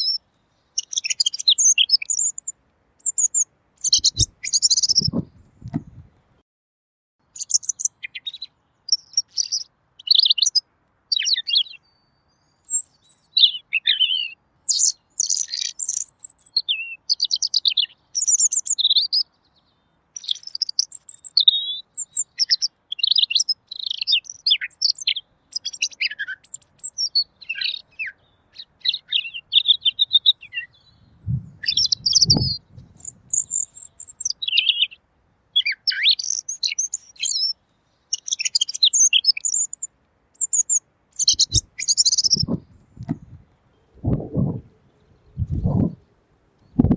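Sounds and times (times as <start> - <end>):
bird singing whistled phrases: 0.8 - 5.3, 7.4 - 11.8, 12.5 - 19.2, 20.2 - 35.0, 35.6 - 42.6
short low thud: 5.0 - 6.0, 42.4 - 43.4.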